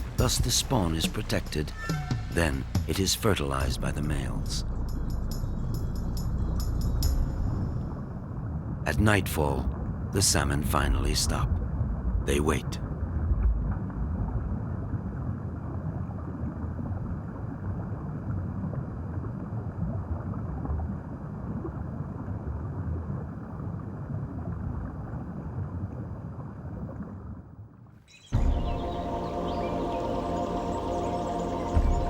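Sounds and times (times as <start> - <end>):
river water flowing: 0.0 - 8.7, 28.2 - 32.0.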